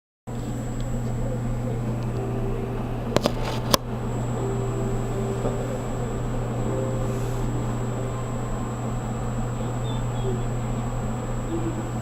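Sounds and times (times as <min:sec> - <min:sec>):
thin high whine: 0:00.3 - 0:12.0
train car low hum: 0:00.3 - 0:12.0.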